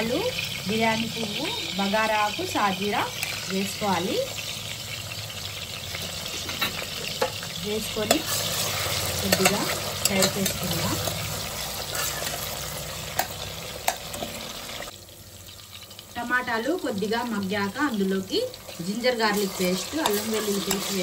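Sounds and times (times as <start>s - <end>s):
tomatoes and spices sizzling in oil: 0.0s - 21.0s
ladle scraping a pot: 6.0s - 12.6s.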